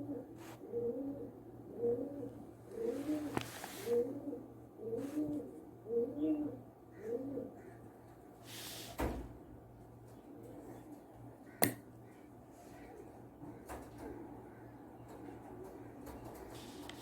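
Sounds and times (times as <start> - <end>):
bird cooing: 0.0 - 7.9.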